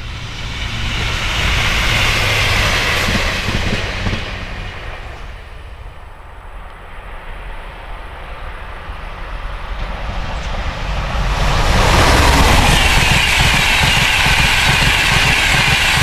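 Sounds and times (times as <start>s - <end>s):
diesel train passing: 0.0s - 16.0s
express train approaching: 0.0s - 16.0s.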